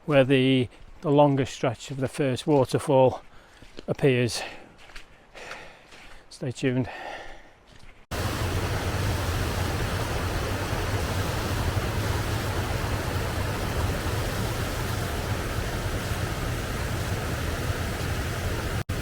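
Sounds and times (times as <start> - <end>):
waterfall rushing: 8.1 - 19.0.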